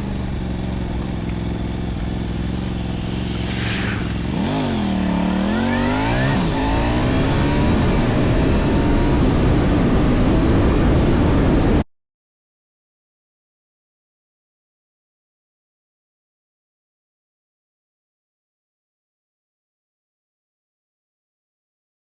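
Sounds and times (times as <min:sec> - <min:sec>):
motorcycle engine running: 0:00.0 - 0:11.8
wind rushing noise: 0:02.8 - 0:11.8.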